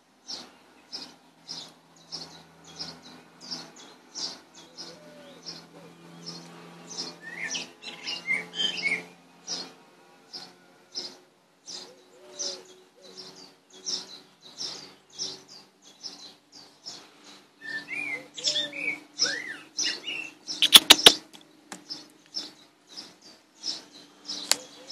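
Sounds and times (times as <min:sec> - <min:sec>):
birds chirping: 0:00.0 - 0:24.9
gliding bird calls: 0:17.6 - 0:21.2.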